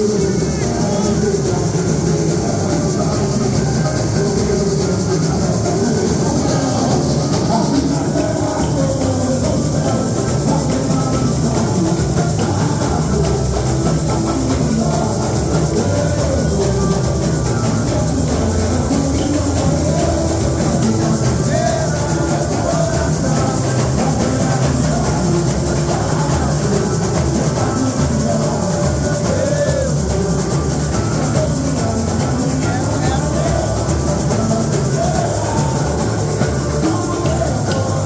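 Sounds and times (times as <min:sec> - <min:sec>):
samba drums: 0:00.0 - 0:38.0
shakers: 0:00.0 - 0:38.0.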